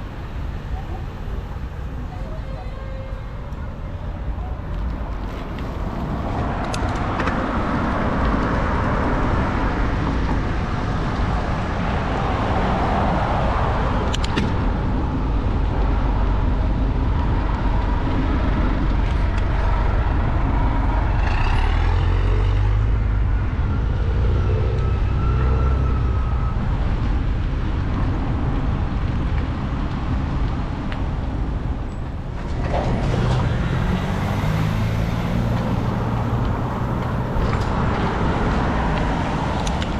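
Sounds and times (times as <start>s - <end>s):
road and wind noise: 0.0s - 39.9s
motor vehicle passing close: 32.5s - 39.9s.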